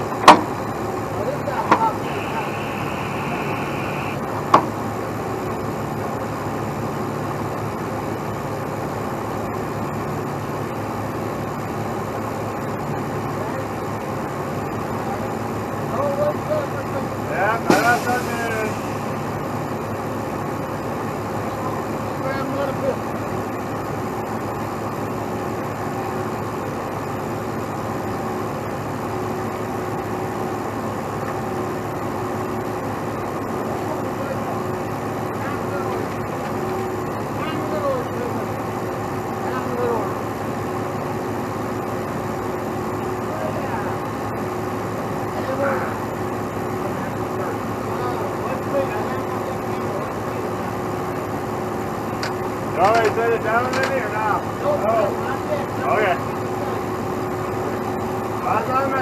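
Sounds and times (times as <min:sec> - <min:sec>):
truck diesel engine running: 0:00.0 - 0:59.0
sharp clank: 0:17.7 - 0:18.4.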